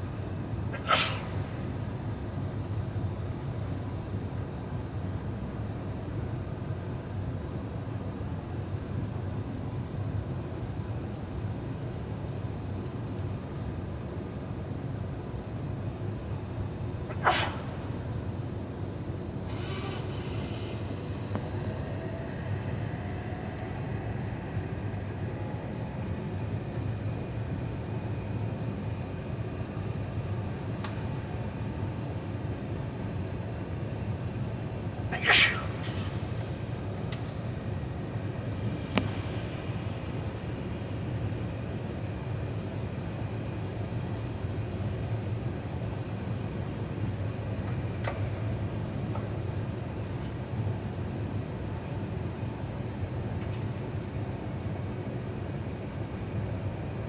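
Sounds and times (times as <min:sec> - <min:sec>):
faint whine: 0:15.2 - 0:43.6.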